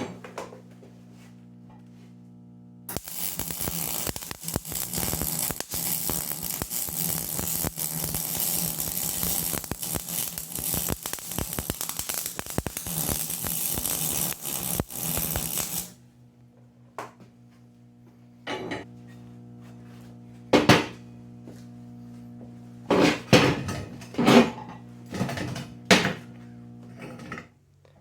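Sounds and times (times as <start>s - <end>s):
arc welding crackling buzz: 1.4s - 16.0s, 24.1s - 27.0s.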